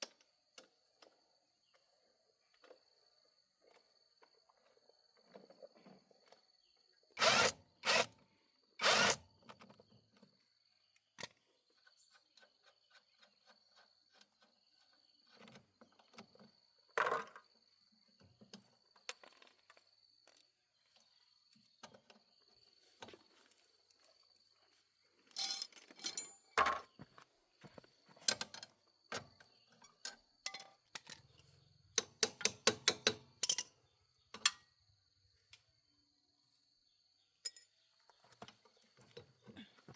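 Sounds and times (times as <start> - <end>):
hand tool knocks and clanks: 25.4 - 27.0, 32.0 - 33.7.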